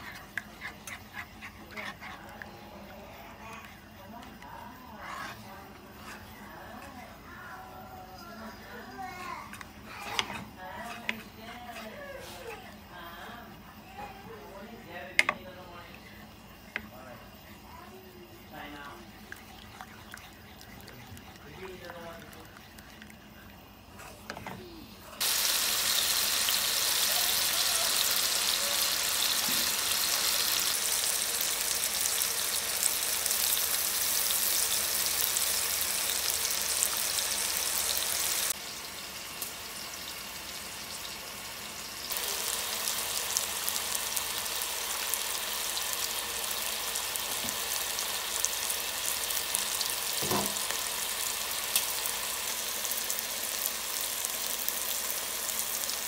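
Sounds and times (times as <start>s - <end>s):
food sizzling in hot oil: 24.7s - 56.0s.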